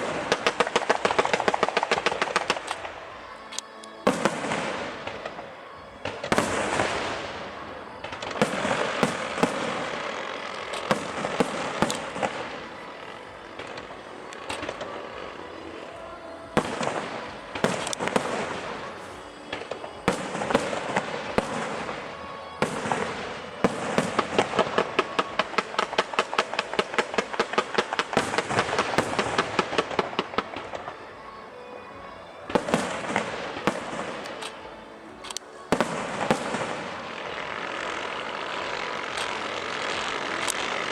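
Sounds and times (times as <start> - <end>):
crackling firework trails: 0.0 - 40.9
fireworks booming: 4.0 - 30.9, 32.0 - 40.9.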